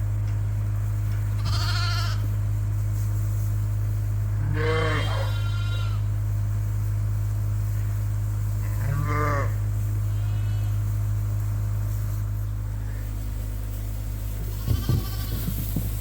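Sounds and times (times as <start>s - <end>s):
steady low hum: 0.0s - 16.0s
sheep bleating: 1.4s - 2.3s, 4.4s - 6.1s, 8.6s - 10.9s, 14.5s - 15.7s.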